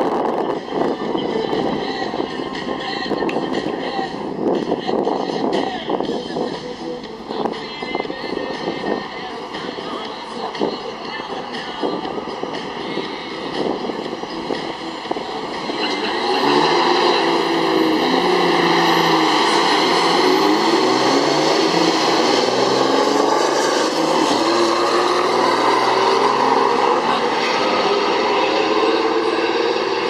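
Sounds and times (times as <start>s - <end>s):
diesel truck engines running loud: 0.0s - 30.0s.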